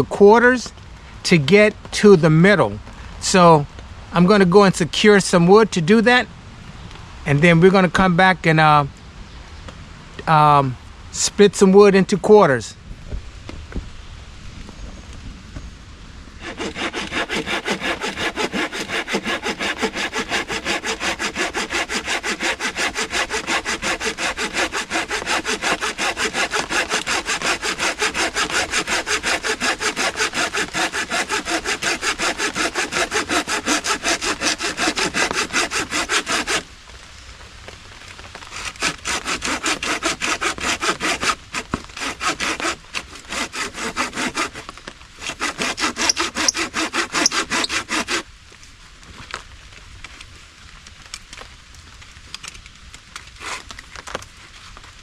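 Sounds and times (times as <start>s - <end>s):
hand saw cutting branch: 16.4s - 36.7s, 38.5s - 48.2s, 53.4s - 54.1s.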